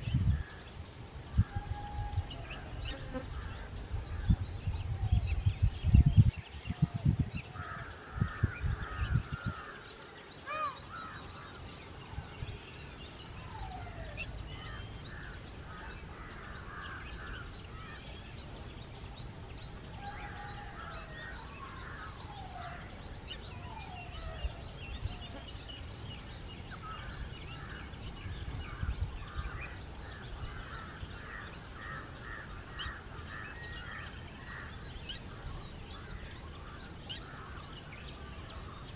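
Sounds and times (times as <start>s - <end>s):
birds calling and chattering: 0.0s - 38.9s
low thumping rumble on microphone: 3.4s - 9.6s.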